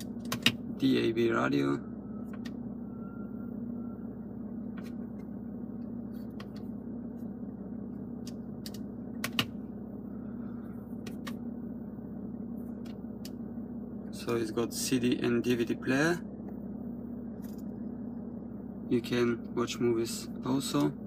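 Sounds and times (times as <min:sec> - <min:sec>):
dashboard buttons clicking: 0:00.0 - 0:00.6, 0:08.2 - 0:09.6
steady low hum: 0:00.0 - 0:21.0.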